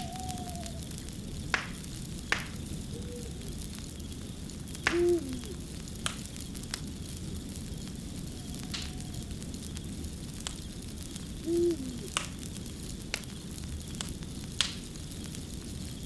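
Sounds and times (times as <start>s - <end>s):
low hoots: 0.0s - 1.1s, 2.6s - 3.9s, 4.8s - 5.8s, 8.1s - 9.6s, 11.3s - 12.3s
wood fire crackling: 0.0s - 16.0s.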